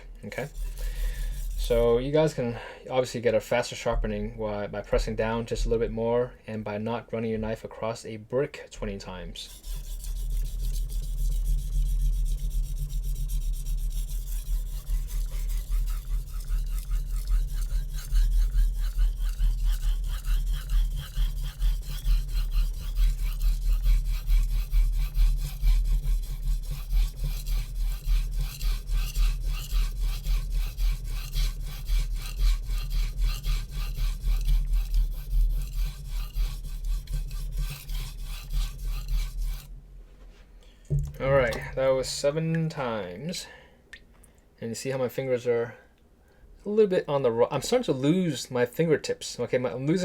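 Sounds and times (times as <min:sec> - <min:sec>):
knife scraping on whetstone: 0:00.3 - 0:02.0, 0:09.4 - 0:39.7
steady low hum: 0:09.3 - 0:42.4.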